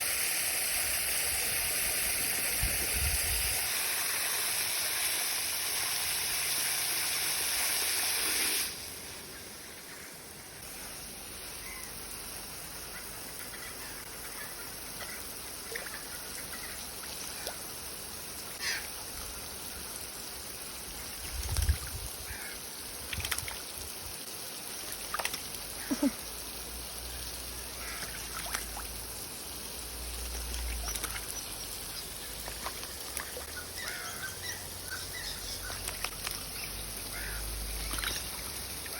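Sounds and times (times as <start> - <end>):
hose spraying water: 0.0 - 9.8, 10.6 - 38.9
faint water splashes: 20.8 - 38.9.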